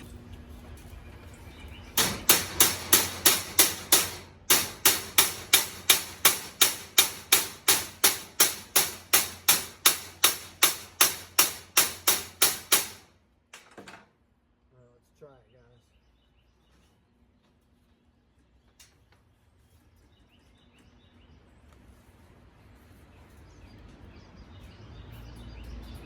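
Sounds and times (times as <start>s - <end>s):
hammer striking steel: 2.0s - 13.1s.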